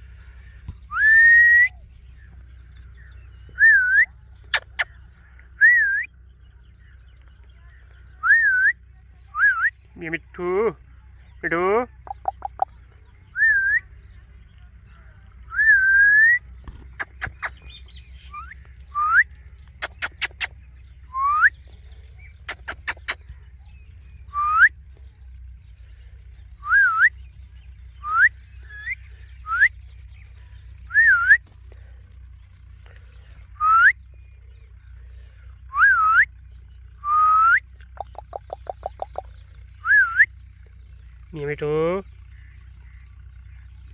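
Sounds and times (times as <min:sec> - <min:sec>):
sharp clicks: 0:16.9 - 0:17.5, 0:19.8 - 0:20.5, 0:22.5 - 0:23.2
parrot whistling: 0:28.0 - 0:29.7.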